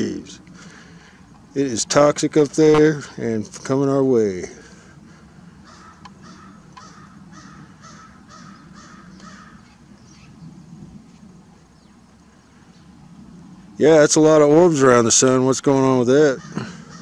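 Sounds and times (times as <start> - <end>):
bird calling: 4.6 - 10.6, 16.0 - 17.0.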